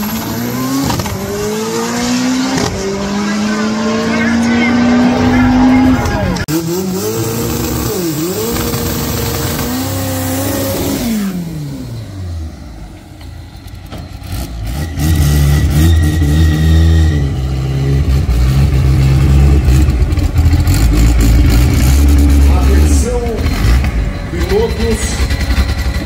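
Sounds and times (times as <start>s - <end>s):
car engine at high revs: 0.0s - 26.0s.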